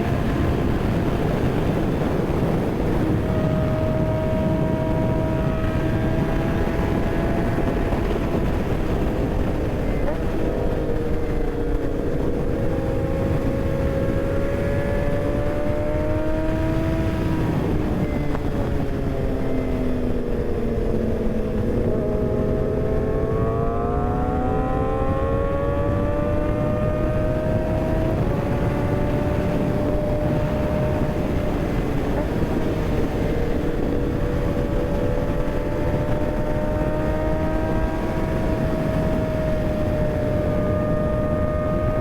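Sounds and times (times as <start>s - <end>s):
motorcycle engine revving: 0.0s - 42.0s
wind rush on microphone: 0.0s - 42.0s.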